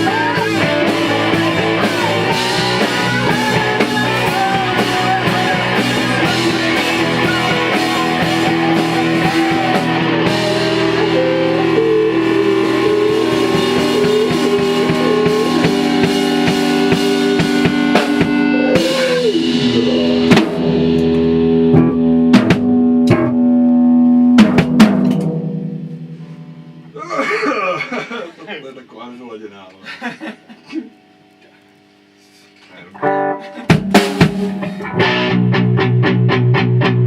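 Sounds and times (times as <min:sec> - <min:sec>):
heavy drum and cymbal hits: 0:00.0 - 0:23.5, 0:24.2 - 0:27.0, 0:33.6 - 0:34.8
band playing with guitars and drums: 0:00.0 - 0:27.0, 0:33.0 - 0:37.0.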